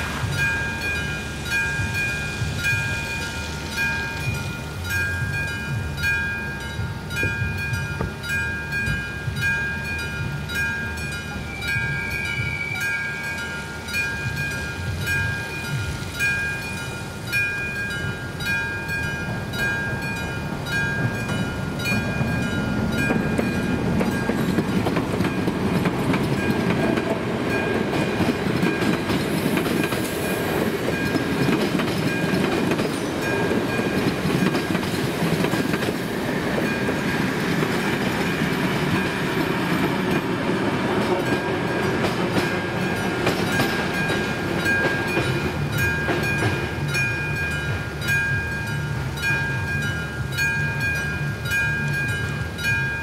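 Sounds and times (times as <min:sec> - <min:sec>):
train wheels clacking: 0:00.0 - 0:53.0
electronic crossing bell: 0:00.2 - 0:24.4, 0:41.2 - 0:53.0.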